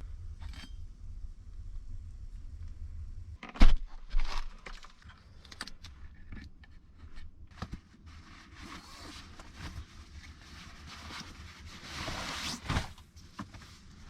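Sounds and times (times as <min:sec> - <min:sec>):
soft even rustling: 0:04.0 - 0:14.0
rustling scrape: 0:06.9 - 0:14.0.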